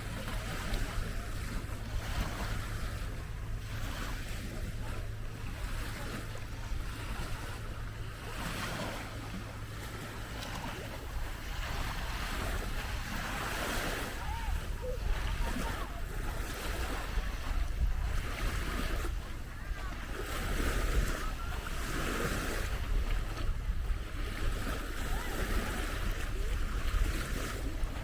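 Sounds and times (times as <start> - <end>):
small waves washing on beach: 0.0 - 28.0
wind rumbling on microphone: 0.0 - 28.0.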